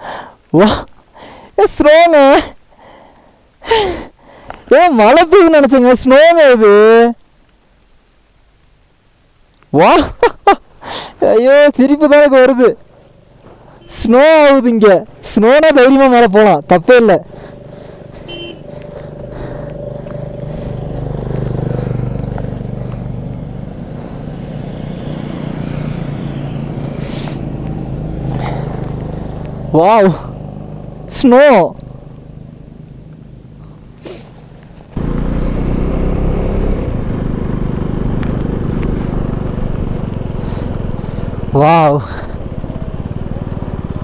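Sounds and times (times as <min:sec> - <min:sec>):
motorcycle engine running: 0:17.2 - 0:31.2, 0:31.8 - 0:44.0.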